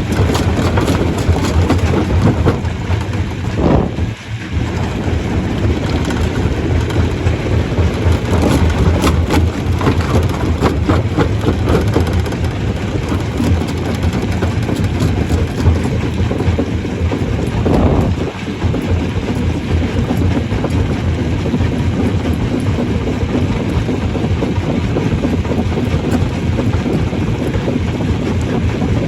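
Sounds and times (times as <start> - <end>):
rocks cracking and clattering: 0.0 - 29.0
stone crusher rumbling: 0.0 - 29.0.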